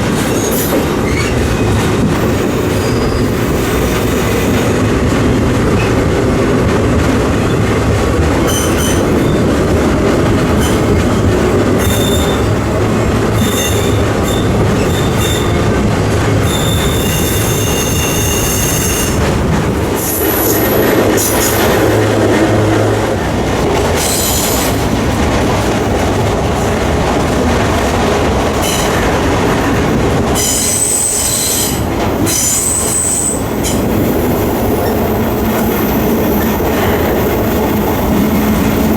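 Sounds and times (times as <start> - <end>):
train wheels rumbling on rails: 0.0 - 38.9
wheel squeals: 2.7 - 3.5, 11.8 - 12.6, 16.4 - 19.2.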